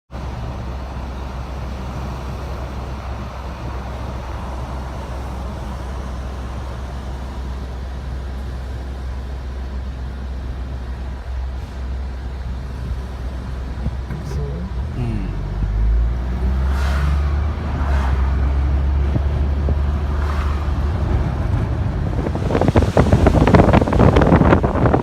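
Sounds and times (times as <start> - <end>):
strong wind buffeting microphone: 17.2 - 25.0.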